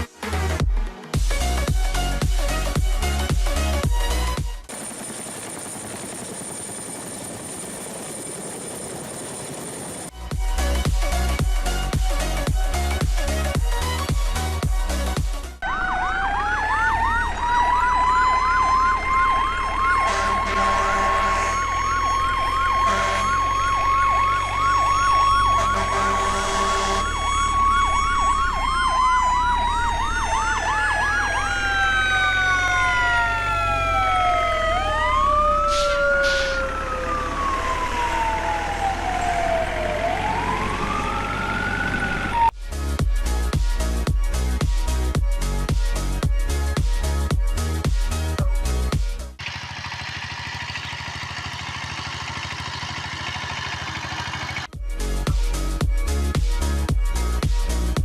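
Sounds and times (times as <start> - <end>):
emergency vehicle siren: 15.6 - 42.6, 49.4 - 54.8.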